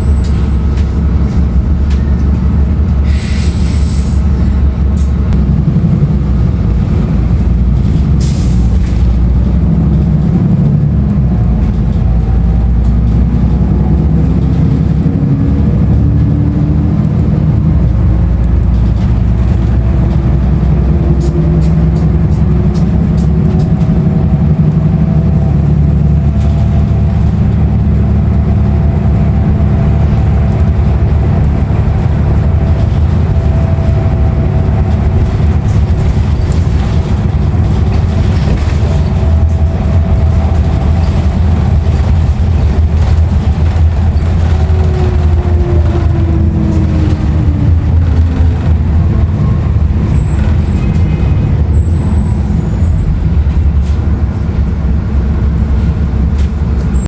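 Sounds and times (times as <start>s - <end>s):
transmission whine: 0.0s - 54.2s
bus diesel engine drone: 0.0s - 57.0s
faint rattles: 29.1s - 52.0s.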